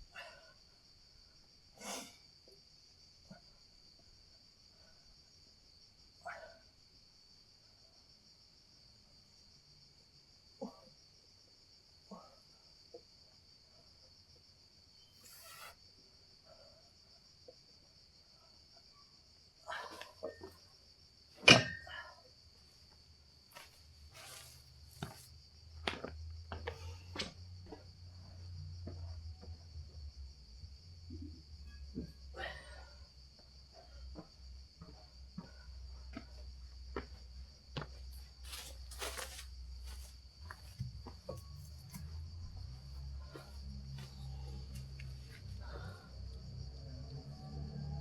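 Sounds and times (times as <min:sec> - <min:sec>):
crickets chirring: 0:00.0 - 0:48.0
insects buzzing: 0:14.8 - 0:16.6
short rustles: 0:38.4 - 0:40.8.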